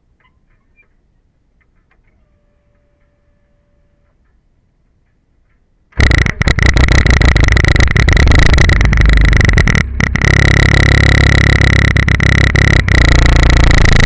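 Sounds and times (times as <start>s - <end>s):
car engine starting and running: 6.0s - 14.0s.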